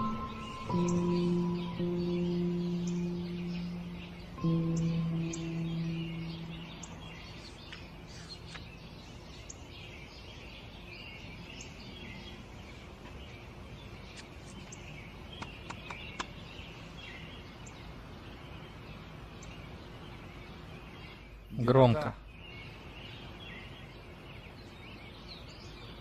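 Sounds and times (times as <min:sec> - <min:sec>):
low held musical tone: 0:00.0 - 0:08.2
small birds chirping: 0:00.0 - 0:26.0.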